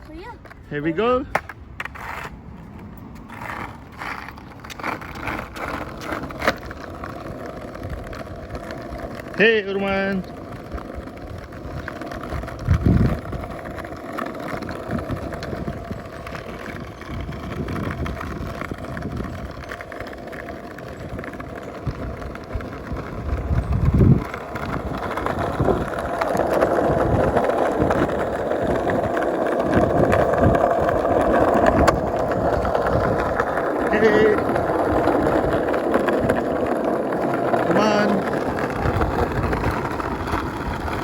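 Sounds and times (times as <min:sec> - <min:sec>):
skateboard wheels rolling on pavement: 0:00.0 - 0:41.0
wind on microphone: 0:10.7 - 0:13.8, 0:14.8 - 0:19.7, 0:21.8 - 0:36.5.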